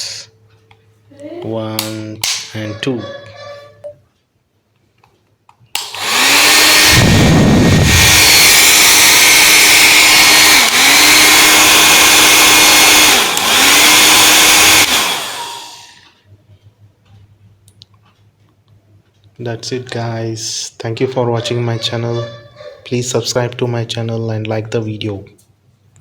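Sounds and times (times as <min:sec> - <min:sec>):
hair dryer motor running: 0:05.8 - 0:16.1.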